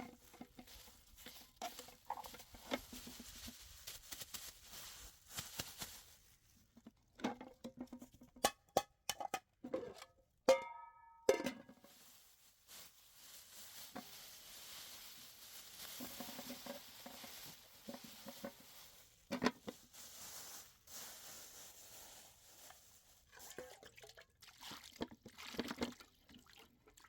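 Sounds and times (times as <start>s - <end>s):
objects knocking and clicking: 7.2s - 11.9s.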